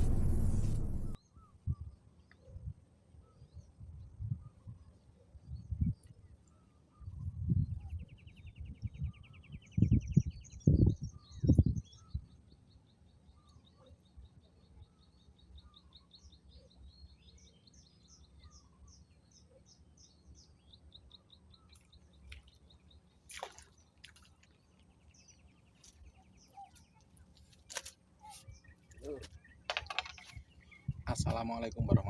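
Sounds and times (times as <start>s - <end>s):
low wind rumble: 0.0s - 1.2s
small birds chirping: 0.0s - 32.0s.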